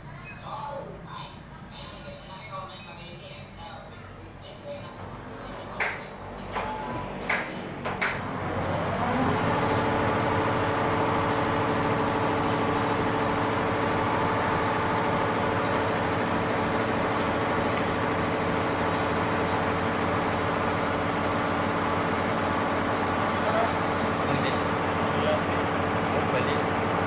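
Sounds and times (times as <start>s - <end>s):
embroidery machine motor whine: 5.3s - 27.0s.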